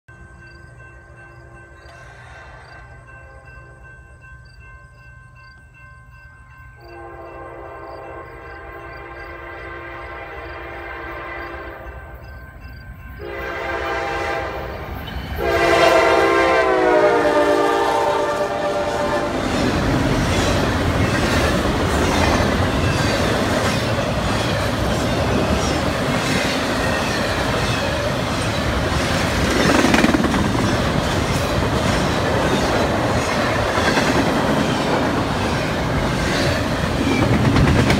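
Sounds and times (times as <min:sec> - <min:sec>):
locomotive horn blasts: 0:06.9 - 0:12.1, 0:13.2 - 0:19.6
wheels clacking over rail joints: 0:19.4 - 0:37.9.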